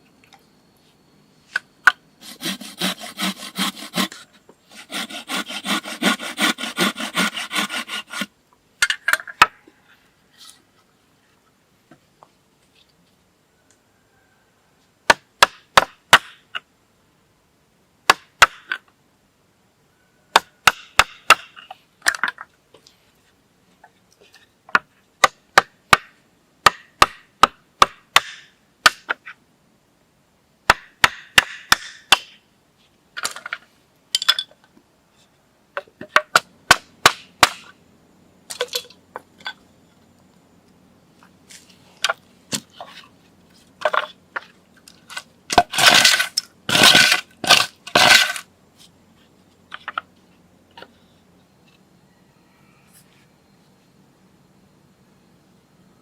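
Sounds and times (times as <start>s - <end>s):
chopping wood: 15.1s - 16.4s, 18.1s - 18.8s, 20.3s - 22.4s, 24.7s - 29.2s, 30.7s - 32.4s, 36.0s - 37.7s, 45.1s - 48.4s.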